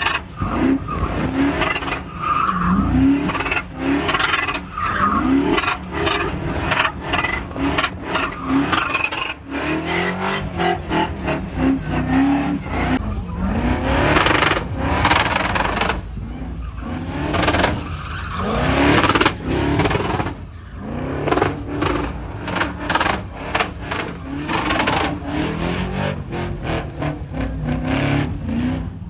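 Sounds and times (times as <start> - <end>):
truck engine revving: 0.0 - 29.0.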